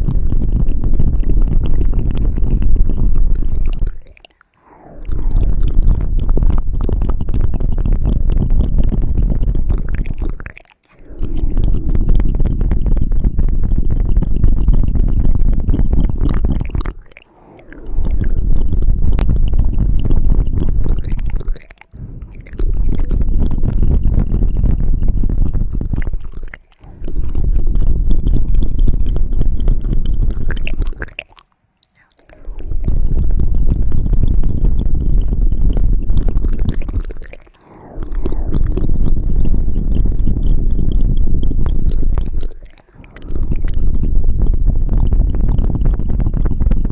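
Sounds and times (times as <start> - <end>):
deep rumble: 0.0 - 31.2, 32.0 - 46.9
rubbing and scratching on microphone: 0.0 - 46.9.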